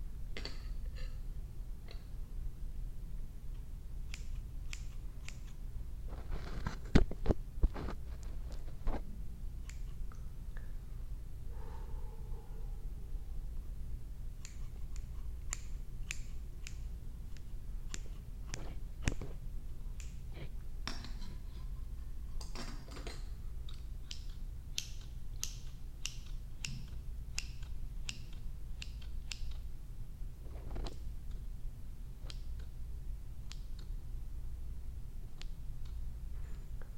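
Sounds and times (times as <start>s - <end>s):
scissors snipping: 4.0s - 5.6s, 9.6s - 10.0s, 14.4s - 19.2s, 23.7s - 29.6s
low hum: 7.8s - 22.4s.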